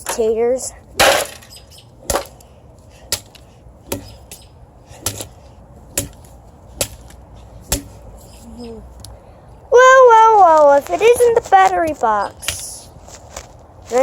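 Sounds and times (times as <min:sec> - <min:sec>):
hard blows on metal parts: 0:00.9 - 0:08.6.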